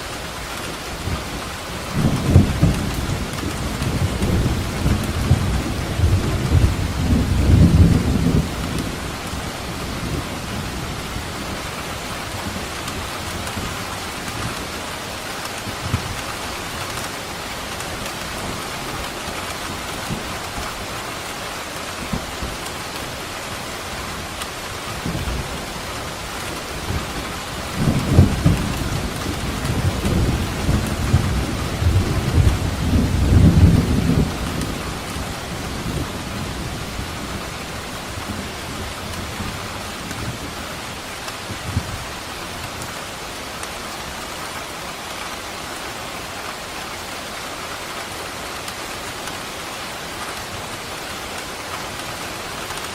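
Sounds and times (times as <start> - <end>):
heavy rain: 0.0 - 52.9
thunder rumbling: 1.0 - 14.7, 23.8 - 42.6.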